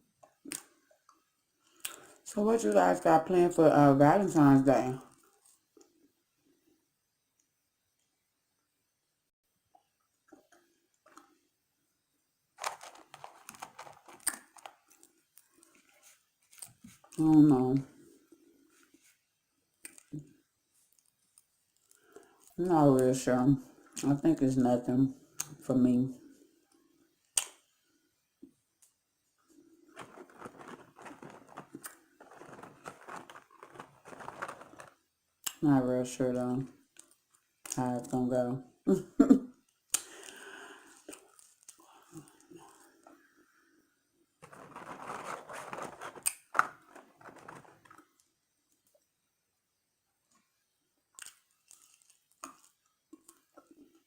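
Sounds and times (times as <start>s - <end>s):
crunchy eating and chewing: 12.6s - 17.2s, 29.8s - 35.6s, 44.4s - 48.2s, 51.2s - 54.0s
paper packaging crinkling: 12.6s - 17.2s, 29.9s - 35.0s, 44.4s - 48.2s.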